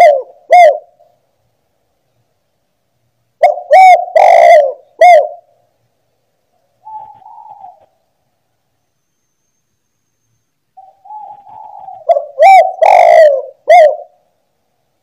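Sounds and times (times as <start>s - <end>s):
dove cooing: 0.0s - 1.1s, 3.4s - 5.6s, 6.8s - 8.0s, 10.8s - 14.3s.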